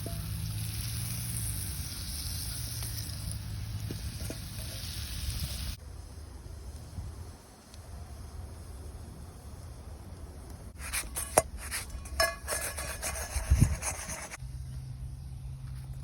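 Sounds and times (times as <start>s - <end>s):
food sizzling in a pan: 0.0s - 5.8s
fire crackling: 0.0s - 14.4s.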